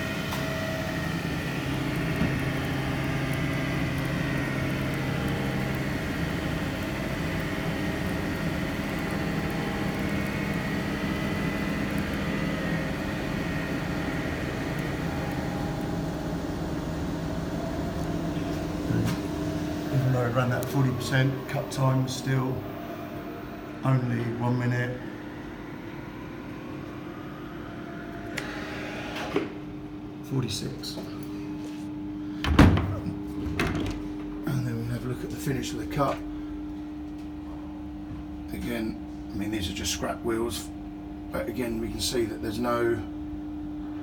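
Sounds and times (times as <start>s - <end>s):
wheel lathe humming: 0.0s - 29.6s
faint high whine: 6.8s - 28.6s.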